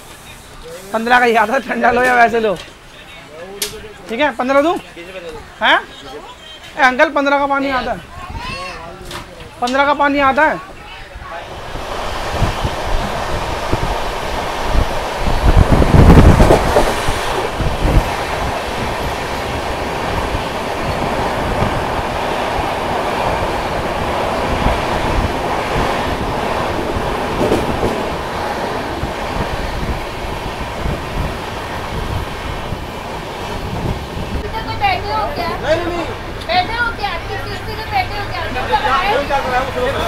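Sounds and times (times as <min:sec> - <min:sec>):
train wheels rumbling: 0:09.1 - 0:40.0.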